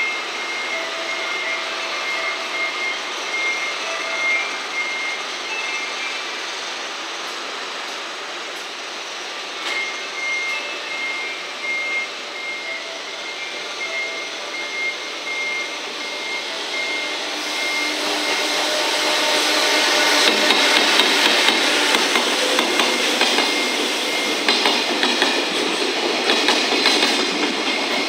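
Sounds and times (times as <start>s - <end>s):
high beep: 0.0s - 6.2s, 9.7s - 25.5s
freight train running: 0.0s - 28.0s.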